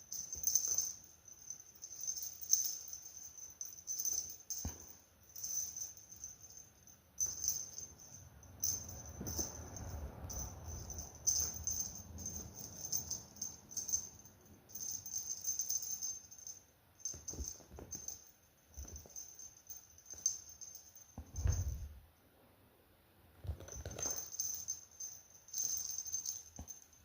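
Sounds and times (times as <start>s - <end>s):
cat toy rattling: 0.0s - 21.9s, 23.4s - 26.9s
soft thumps: 21.2s - 22.0s.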